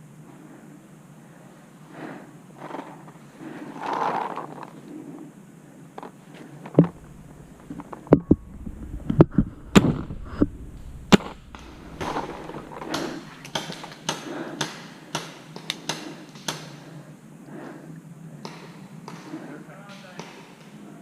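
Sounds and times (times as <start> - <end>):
paintball markers firing: 11.1 - 16.8.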